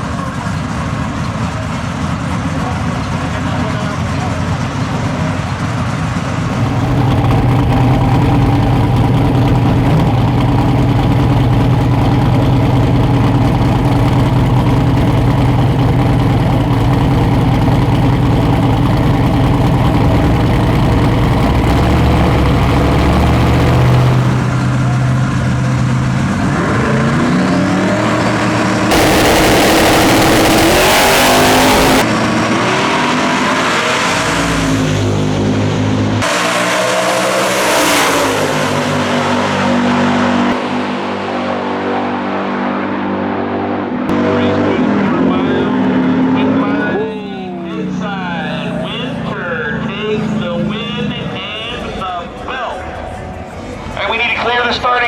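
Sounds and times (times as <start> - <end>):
drag car engines revving: 0.0 - 55.0
loud rushing burst: 6.5 - 14.9, 17.6 - 24.6, 28.9 - 32.2.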